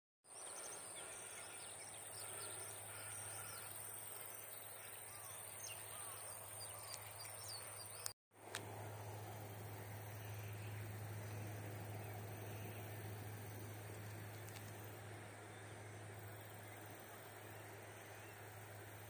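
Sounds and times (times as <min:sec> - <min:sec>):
bird chirps: 0:00.3 - 0:08.1
low hum: 0:08.4 - 0:19.0.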